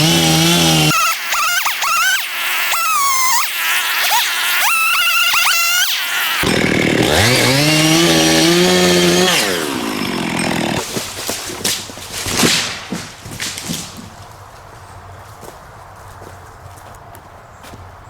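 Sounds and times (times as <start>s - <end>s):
chainsaw revving: 0.0s - 14.2s
tree cracking and crashing: 6.4s - 14.9s.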